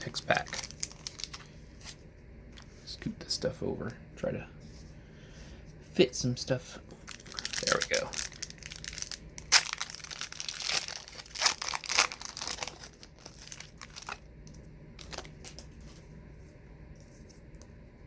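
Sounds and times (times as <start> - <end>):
wax paper wrapper crinkling: 0.0 - 2.0, 6.9 - 16.2.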